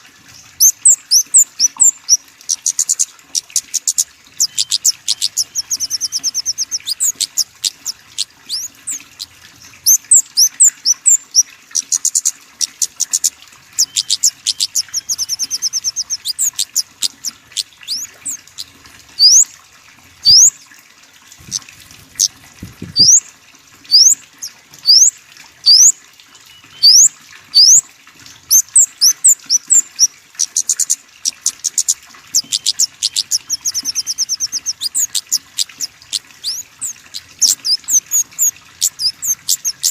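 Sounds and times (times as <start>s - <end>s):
songbirds chirping: 0.3s - 19.5s, 23.9s - 27.8s.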